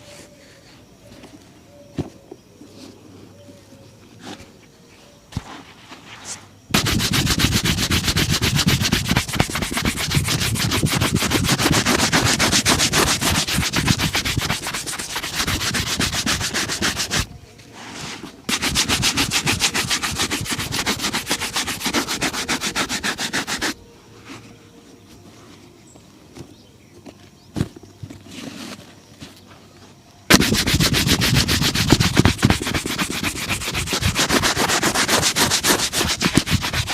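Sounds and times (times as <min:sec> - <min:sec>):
shoe being buffed: 0:06.8 - 0:17.3, 0:18.5 - 0:23.8, 0:30.3 - 0:36.9.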